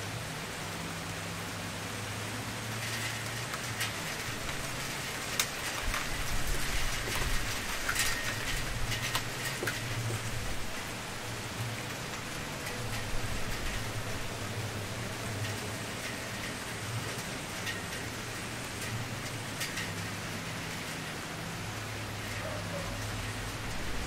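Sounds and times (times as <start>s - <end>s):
wood fire crackling: 2.5s - 24.0s
burning wood popping: 2.9s - 20.8s.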